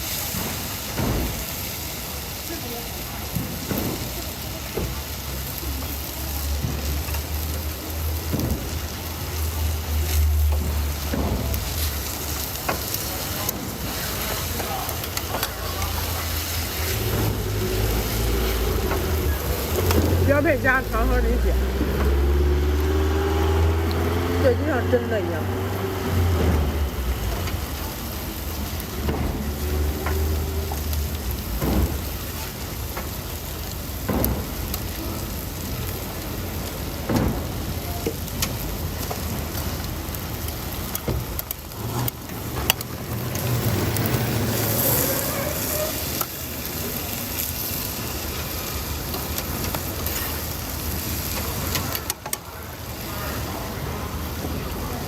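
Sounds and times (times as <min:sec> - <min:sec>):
food sizzling: 0:00.0 - 0:55.0
traffic: 0:00.0 - 0:55.0
sharp clicks and knocks: 0:21.7 - 0:22.3, 0:28.9 - 0:32.3.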